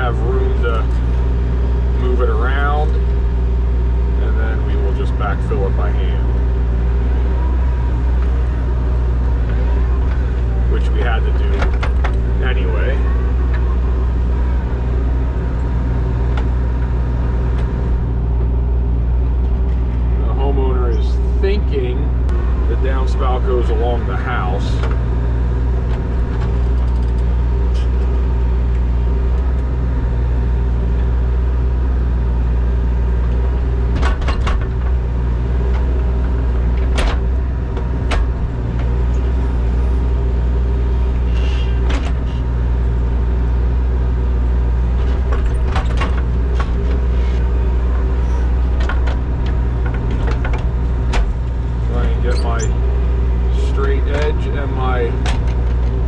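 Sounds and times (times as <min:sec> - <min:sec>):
diesel engine running: 0:00.0 - 0:56.0
sharp clanks and knocks: 0:09.4 - 0:12.4, 0:33.8 - 0:39.2, 0:45.0 - 0:47.5, 0:48.2 - 0:52.8, 0:55.1 - 0:56.0.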